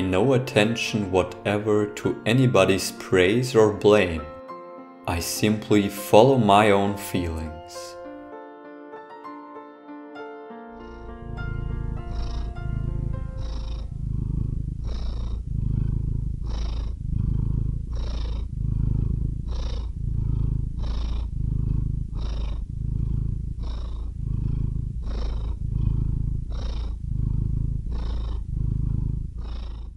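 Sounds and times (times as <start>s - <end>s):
cat purring: 0.0s - 4.4s, 10.8s - 29.9s
closing music: 0.0s - 14.2s.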